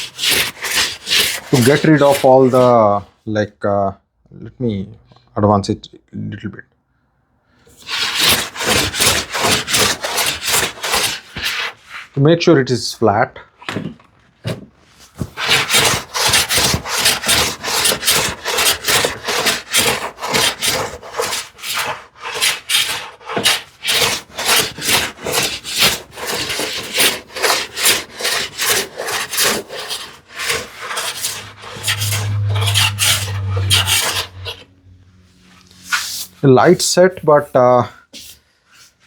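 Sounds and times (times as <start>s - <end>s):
hand plane shaving wood: 0.0s - 2.9s, 7.8s - 12.1s, 15.1s - 34.6s
low hum: 31.2s - 35.8s.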